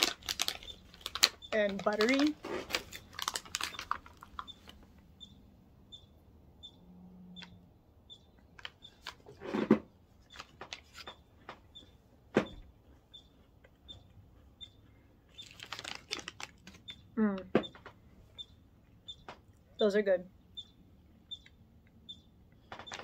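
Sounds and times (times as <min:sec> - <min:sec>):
chewing crunchy cookie: 0:00.0 - 0:04.8, 0:10.2 - 0:17.1
faint high chirp: 0:04.4 - 0:09.0, 0:16.8 - 0:23.0.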